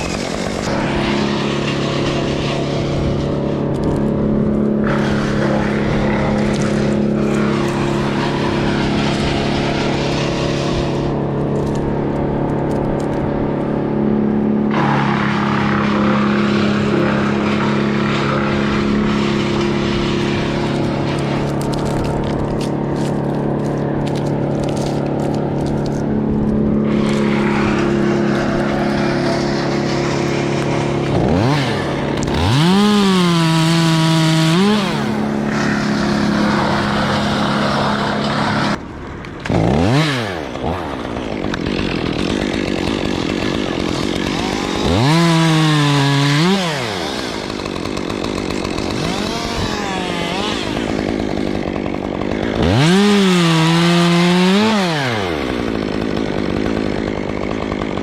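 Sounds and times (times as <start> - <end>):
steady engine drone: 0.0 - 42.0
chainsaw revving and cutting wood: 0.0 - 58.0.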